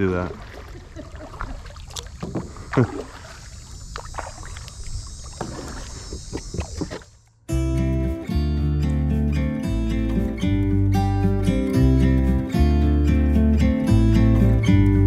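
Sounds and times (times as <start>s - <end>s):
paddle splashing in water: 0.0s - 7.2s.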